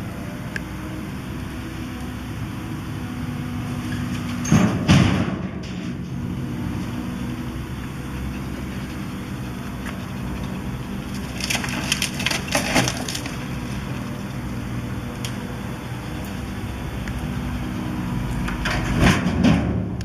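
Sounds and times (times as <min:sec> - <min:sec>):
excavator engine running: 0:00.0 - 0:20.0
timber splintering and cracking: 0:10.7 - 0:14.2.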